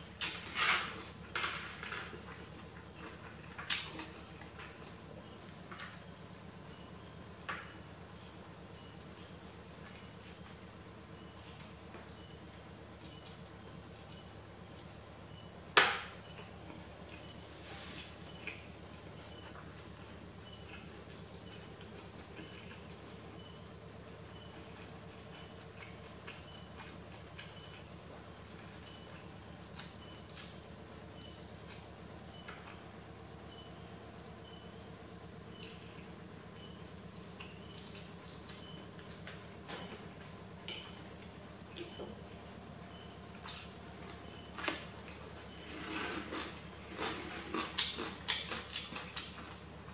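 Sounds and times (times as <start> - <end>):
crickets chirring: 0.0 - 49.9
chewing clicks and crunches: 46.4 - 49.6.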